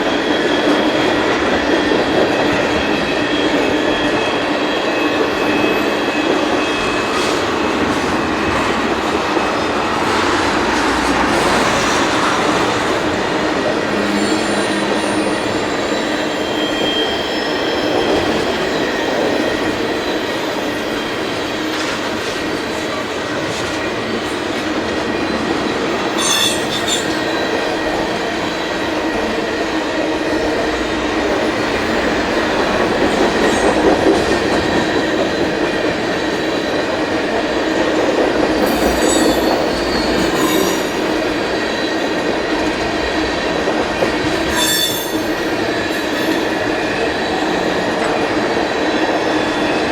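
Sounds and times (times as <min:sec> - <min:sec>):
sharp clanks of freight cars: 0:00.0 - 0:49.9
train wheels rumbling on rail: 0:00.0 - 0:49.9
faint wheel squeal: 0:44.5 - 0:45.4.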